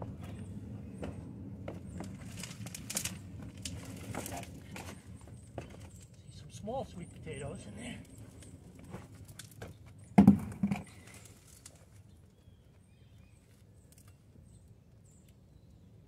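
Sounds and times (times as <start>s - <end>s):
soil and roots rustling: 1.7s - 9.8s, 10.6s - 12.4s.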